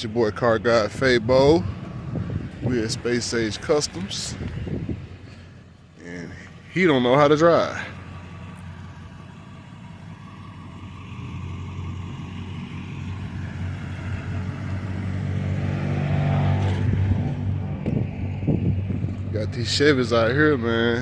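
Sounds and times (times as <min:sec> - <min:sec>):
tow truck engine running: 0:00.0 - 0:15.6.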